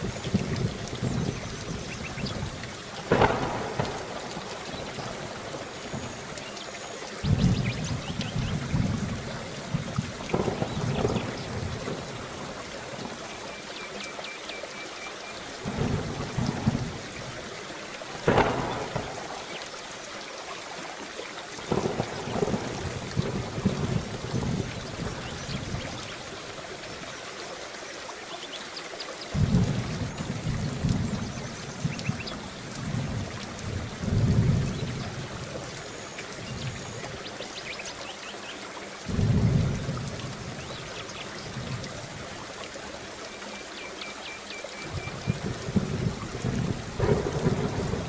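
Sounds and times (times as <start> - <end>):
thunder crack: 0.0 - 6.1, 7.3 - 12.2, 18.2 - 19.6, 21.7 - 25.8, 29.3 - 32.2, 45.2 - 48.0
rolling thunder rumbles: 0.0 - 6.2, 7.2 - 13.2, 15.6 - 17.4, 18.1 - 19.6, 21.7 - 26.2, 29.3 - 35.8, 39.1 - 41.9, 44.9 - 48.0
steady rain: 0.0 - 48.0.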